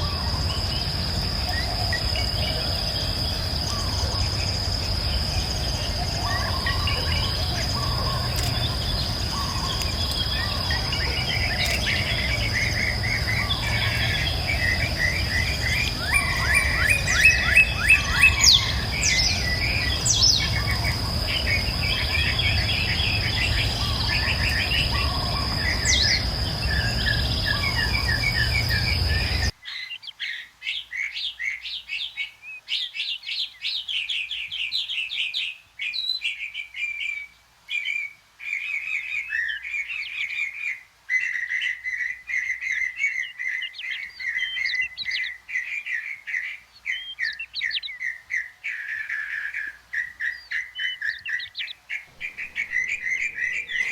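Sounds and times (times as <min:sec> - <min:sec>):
high insect drone: 0:00.0 - 0:29.5, 0:52.1 - 0:53.9
birdsong with sweeping notes: 0:00.0 - 0:35.5, 0:37.9 - 0:53.9
tropical birds calling: 0:00.0 - 0:53.9
low rumble: 0:52.1 - 0:53.9.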